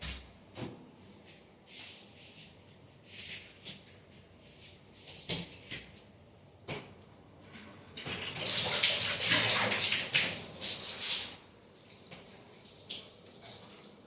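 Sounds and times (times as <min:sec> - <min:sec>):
running splashing water: 0:08.0 - 0:11.4.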